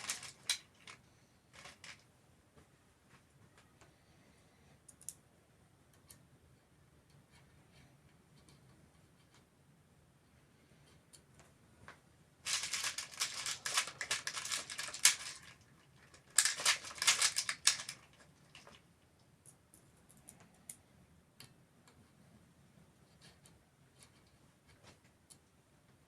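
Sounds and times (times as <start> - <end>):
metal tool parts rattling: 12.5 - 18.7.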